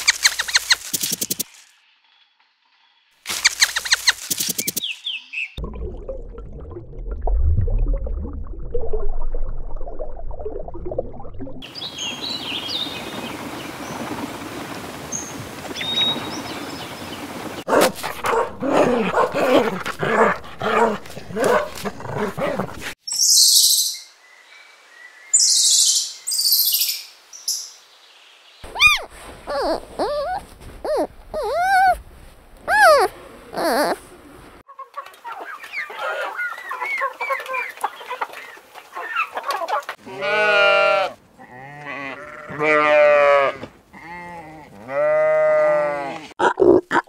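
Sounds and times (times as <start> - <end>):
high-pitched chirps: 3.4 - 5.0, 28.7 - 32.0, 32.7 - 34.0
animal hissing: 28.7 - 32.0, 32.7 - 34.0
short pitched animal calls: 28.7 - 32.0, 32.7 - 34.0.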